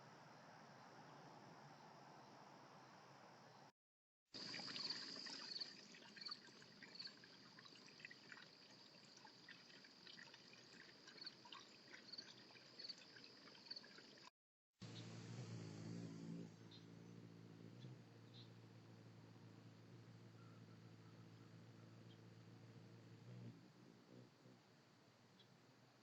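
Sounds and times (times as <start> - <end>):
water trickling and dripping: 4.4 - 14.3.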